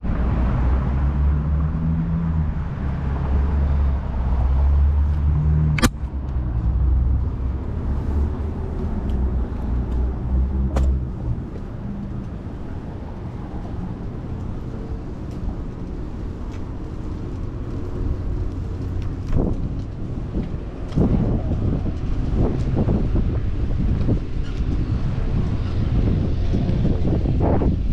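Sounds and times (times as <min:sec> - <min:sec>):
traffic background: 0:00.0 - 0:27.9
vehicle engine humming: 0:00.0 - 0:27.9
sharp clicks: 0:05.8 - 0:06.0.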